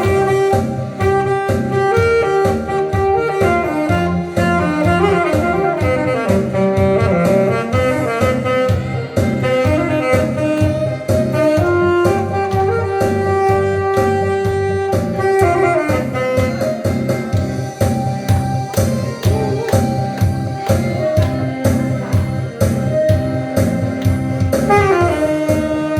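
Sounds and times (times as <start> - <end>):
accompaniment with steady beat: 0.0 - 25.9
alto saxophone melody: 0.0 - 25.9.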